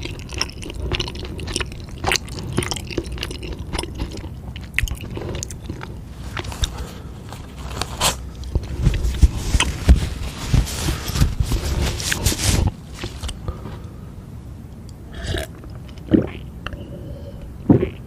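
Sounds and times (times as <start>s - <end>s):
crackling and scraping: 1.3s - 13.9s.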